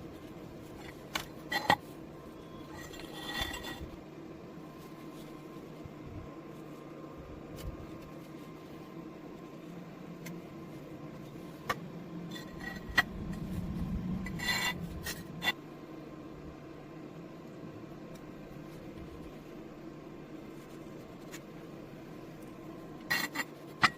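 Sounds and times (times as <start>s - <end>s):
low steady hum: 0.0s - 23.9s
metal rubbing scrape: 2.7s - 4.0s, 12.2s - 15.6s.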